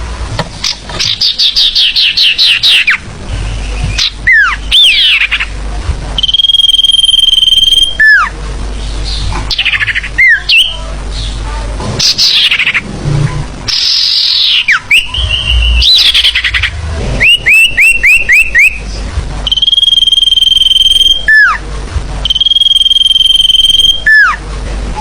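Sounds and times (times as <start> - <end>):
bird chirps: 0.6 - 5.5, 6.2 - 8.3, 13.7 - 18.9
high bird trill: 0.7 - 5.6, 6.2 - 11.4, 12.0 - 12.9, 13.7 - 21.6, 22.2 - 24.4
downward-sliding bird whistles: 13.7 - 18.8.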